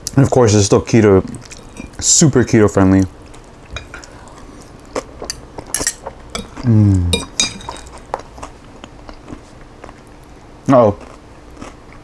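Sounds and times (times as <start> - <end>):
utensil clinking against dish: 1.5 - 2.2, 3.8 - 4.2, 5.3 - 8.2
person humming: 6.6 - 7.3.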